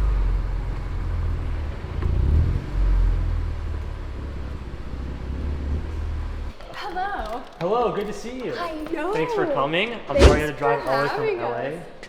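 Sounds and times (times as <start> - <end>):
car engine low rumble: 0.0 - 6.5.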